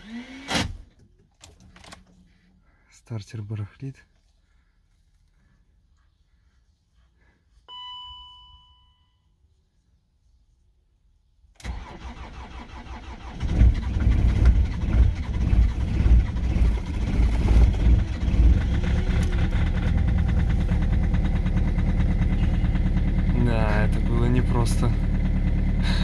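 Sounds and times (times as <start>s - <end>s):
diesel engine running and idling: 11.7s - 26.0s.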